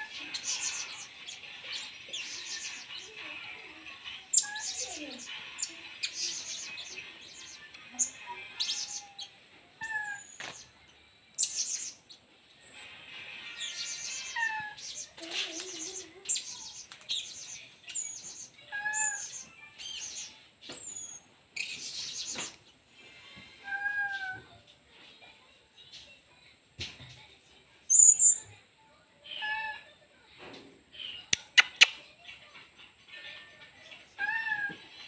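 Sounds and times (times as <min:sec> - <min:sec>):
parrot shrill chirps: 0:18.7 - 0:19.4.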